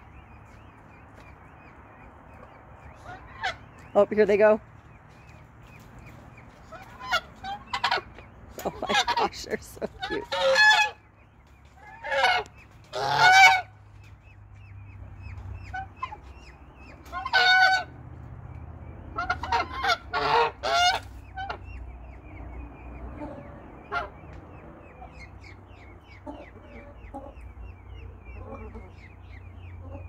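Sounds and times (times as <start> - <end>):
chicks peeping: 0.0 - 30.0
large bird honking: 6.7 - 8.1, 8.8 - 11.1, 11.8 - 13.8, 17.1 - 18.0, 19.1 - 30.0.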